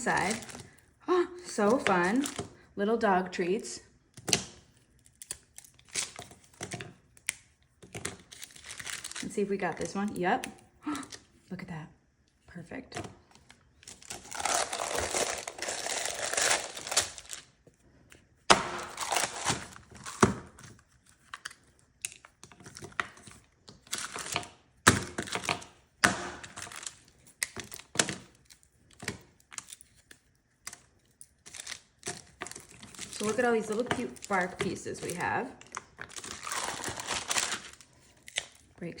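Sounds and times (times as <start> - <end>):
parchment paper crinkling: 0.0 - 0.8, 1.4 - 2.6, 4.4 - 10.2, 13.2 - 38.9
frozen slab snapping: 18.5 - 20.3.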